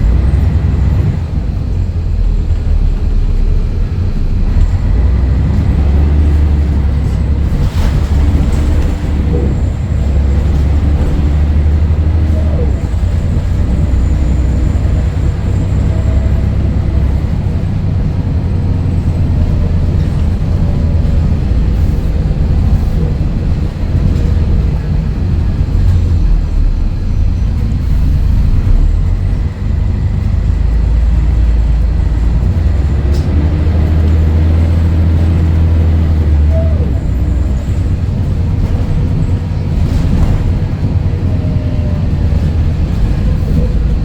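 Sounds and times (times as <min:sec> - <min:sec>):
bus diesel engine rumbling: 0:00.0 - 0:44.0.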